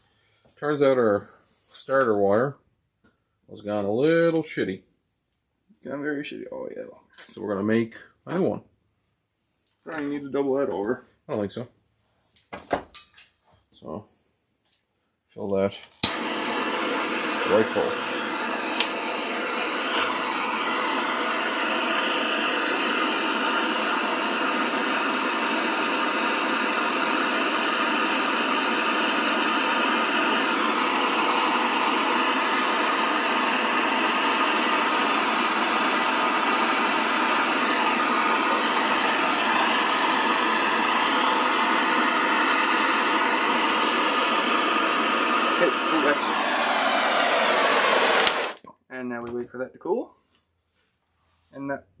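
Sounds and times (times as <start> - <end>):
torch flame hissing: 16.0 - 48.6.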